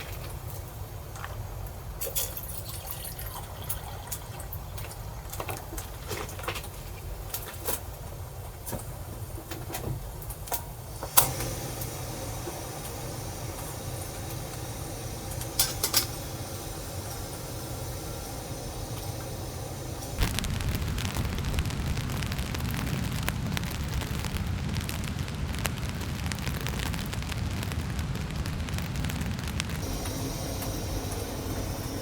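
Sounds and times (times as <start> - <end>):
rain drops tapping on a shell: 0.0 - 32.0
wind rumbling: 4.3 - 32.0.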